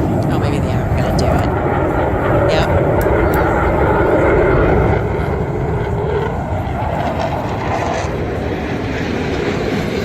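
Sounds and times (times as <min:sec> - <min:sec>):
jet engines roaring overhead: 0:00.0 - 0:10.0.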